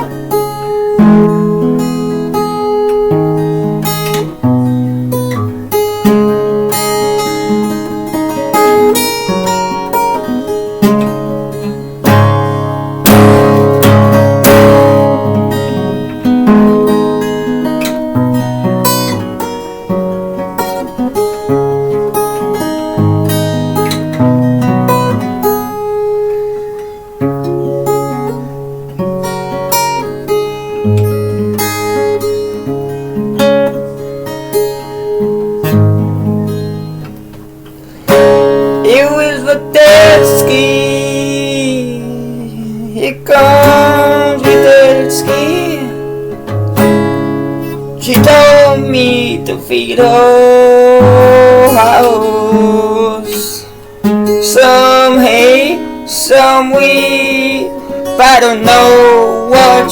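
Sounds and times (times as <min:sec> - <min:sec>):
acoustic guitar strumming chords: 0:00.0 - 0:59.9.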